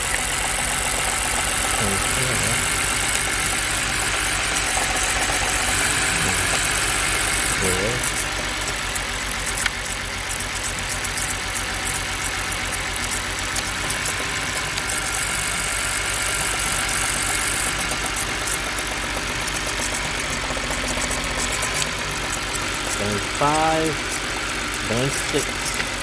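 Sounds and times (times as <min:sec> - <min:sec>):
car engine idling roughly: 0:00.0 - 0:26.0.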